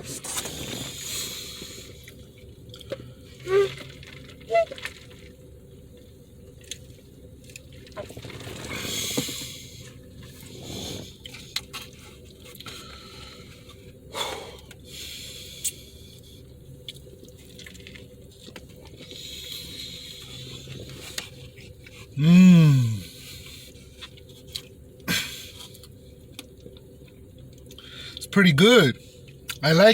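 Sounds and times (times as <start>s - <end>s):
rustling or slurping: 0.0s - 5.4s, 7.5s - 13.9s, 16.7s - 24.8s
person humming mm: 22.2s - 23.1s.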